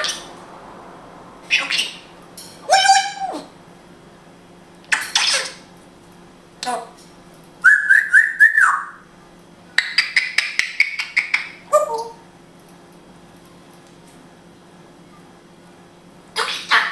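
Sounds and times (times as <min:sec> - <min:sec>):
parrot squawking and whistling: 0:01.5 - 0:03.5, 0:07.6 - 0:09.1.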